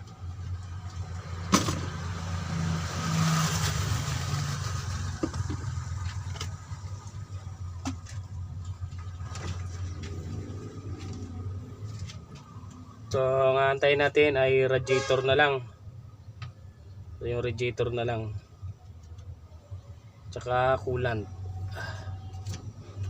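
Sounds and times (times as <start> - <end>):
low mechanical hum: 5.1 - 13.3, 15.6 - 23.0.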